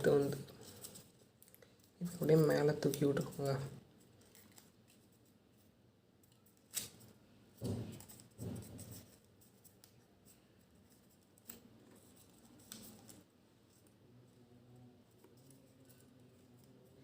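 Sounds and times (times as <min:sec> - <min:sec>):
paper crackling and rustling: 0:00.0 - 0:05.4, 0:06.2 - 0:13.9.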